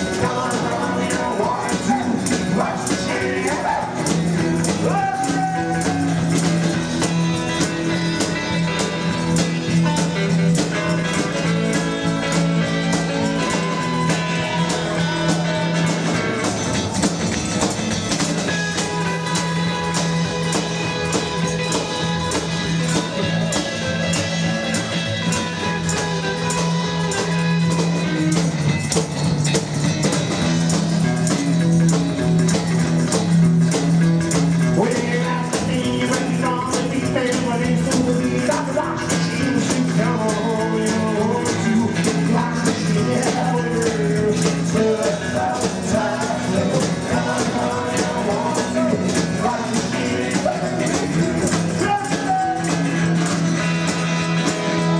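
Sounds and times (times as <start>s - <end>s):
person singing: 0.0s - 10.0s, 12.8s - 16.7s, 34.6s - 54.9s
rockabilly band playing: 0.0s - 54.9s.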